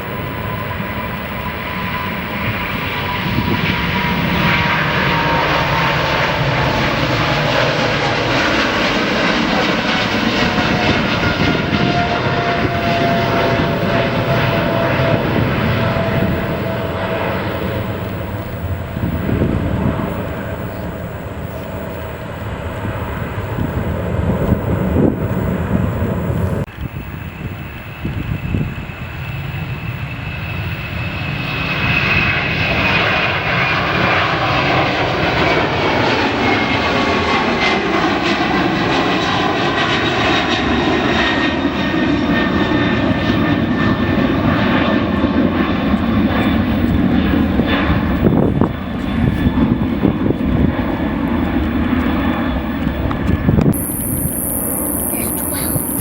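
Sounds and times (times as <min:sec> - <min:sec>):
jet engines rumbling: 0:00.0 - 0:56.0
high engine whine falling in pitch: 0:53.6 - 0:56.0.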